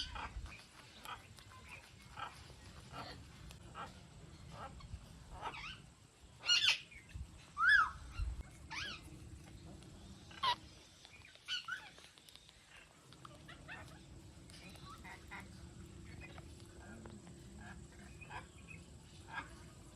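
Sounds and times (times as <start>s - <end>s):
parakeet squawking: 6.4s - 7.0s, 10.3s - 10.7s.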